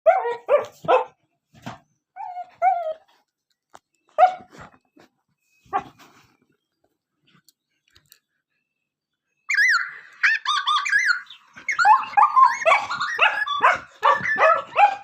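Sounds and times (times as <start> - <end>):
dog whining and yelping: 2.1 - 3.3, 9.5 - 15.0.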